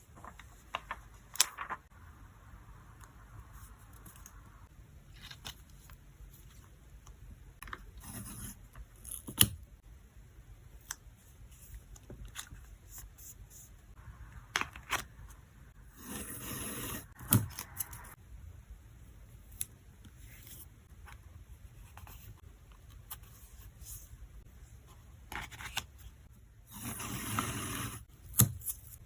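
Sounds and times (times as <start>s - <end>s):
plastic sleeves rustling: 0.0s - 1.9s.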